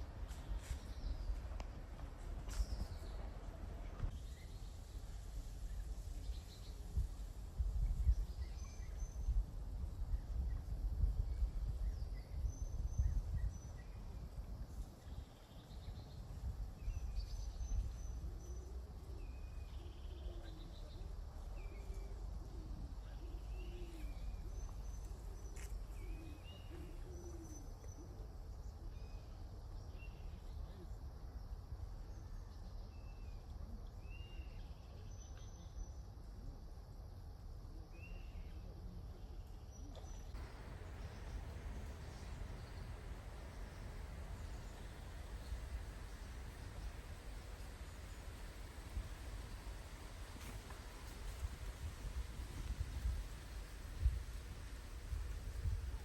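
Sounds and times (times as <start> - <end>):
wind rumble on microphone: 0.0 - 27.6, 39.8 - 56.0.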